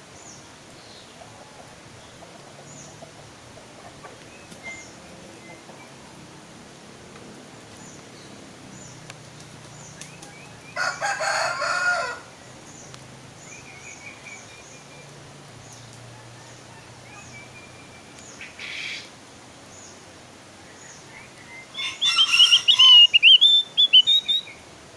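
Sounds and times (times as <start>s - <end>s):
rapid bird song: 0.0s - 24.7s
bird chirping: 3.8s - 6.1s, 7.7s - 11.0s, 12.4s - 19.1s, 19.7s - 24.6s
lower bird call: 20.6s - 24.6s.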